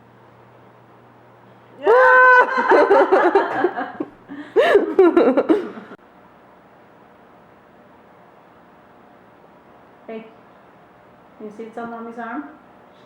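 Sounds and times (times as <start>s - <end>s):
person laughing: 1.8s - 6.0s.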